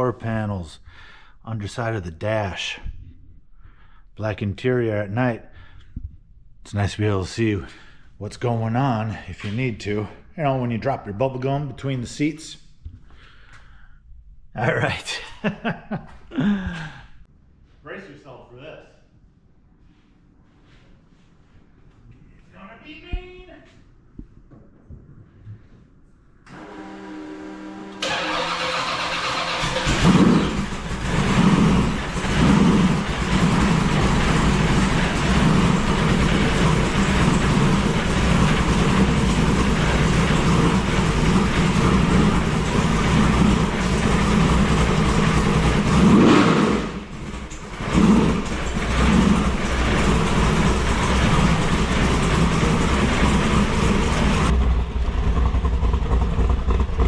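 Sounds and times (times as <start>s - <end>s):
car engine starting and revving: 26.5s - 57.0s.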